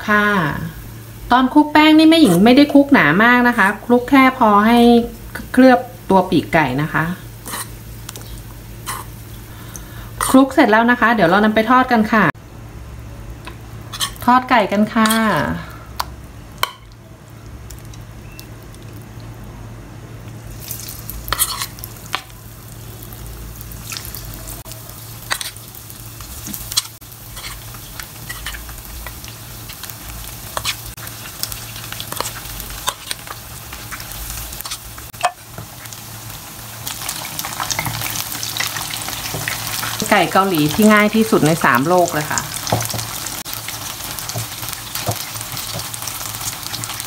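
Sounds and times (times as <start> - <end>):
chicken frying in oil: 20.3 - 47.0.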